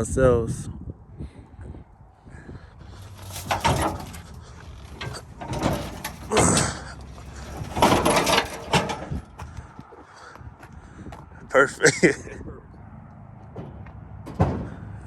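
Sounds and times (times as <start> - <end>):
metal clattering and scraping: 2.8 - 9.7, 13.5 - 15.0.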